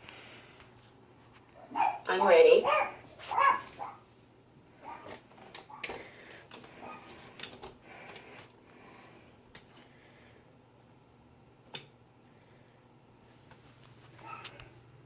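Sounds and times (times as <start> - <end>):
rustling of person moving: 0.0 - 2.0, 2.7 - 10.2, 13.1 - 15.0.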